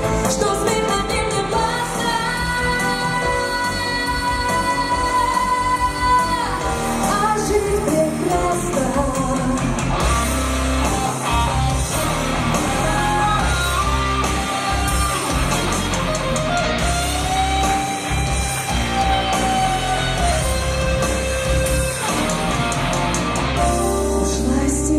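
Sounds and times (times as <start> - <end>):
person singing: 0.0 - 10.0, 12.5 - 15.8, 23.6 - 24.9
band with guitar: 0.0 - 24.9
heavy bass and drum beat: 0.0 - 24.9.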